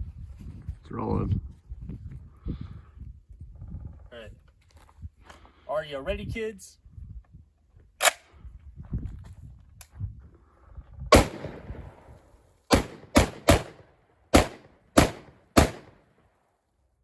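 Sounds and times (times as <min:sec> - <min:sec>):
gunshots with echo: 0:11.1 - 0:16.0.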